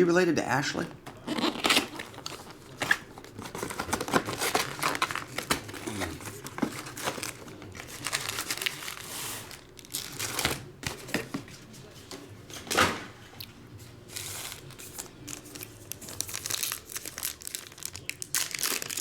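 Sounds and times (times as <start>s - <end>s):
foil wrappers tearing and crinkling: 1.2s - 11.2s, 14.0s - 19.0s.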